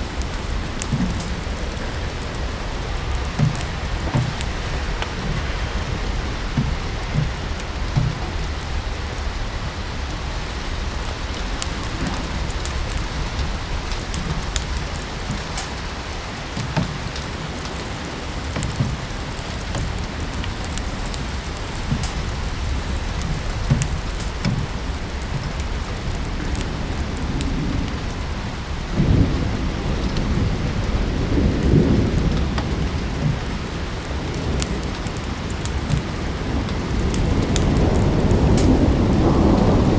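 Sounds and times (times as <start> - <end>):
low rumble: 0.0 - 16.2
steady rain falling: 0.0 - 39.9
wood fire crackling: 0.0 - 39.9.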